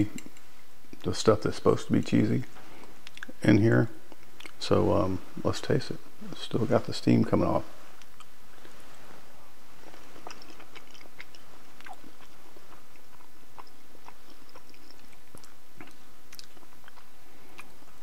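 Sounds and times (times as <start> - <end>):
man chewing: 4.1 - 4.6, 9.8 - 18.0.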